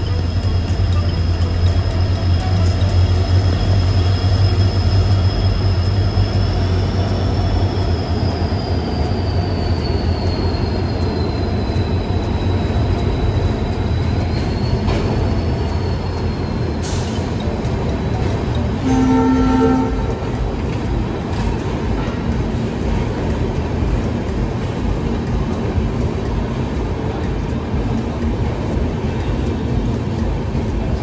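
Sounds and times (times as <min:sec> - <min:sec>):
wheel squeal: 0:00.0 - 0:20.5
train rumbling: 0:00.0 - 0:31.0.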